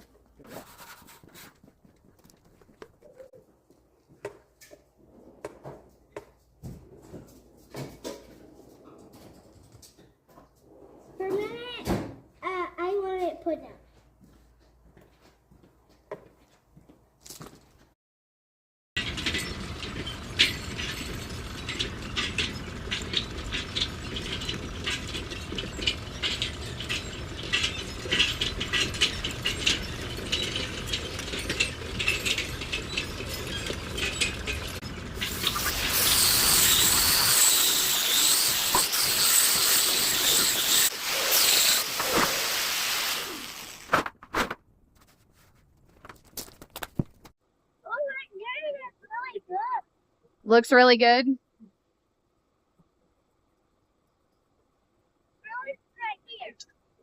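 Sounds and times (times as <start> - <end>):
scraping rust off metal: 0.4 - 1.6, 19.0 - 44.0
hissing rush: 35.2 - 43.9.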